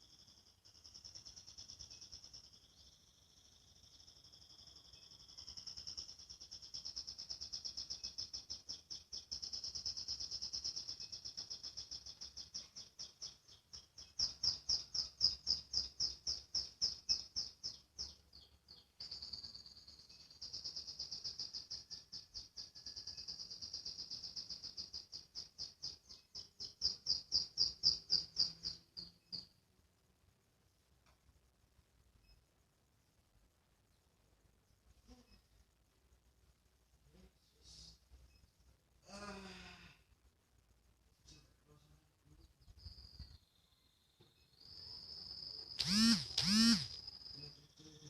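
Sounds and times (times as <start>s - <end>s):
canary singing rapid trills: 0.0s - 29.6s, 42.6s - 48.0s.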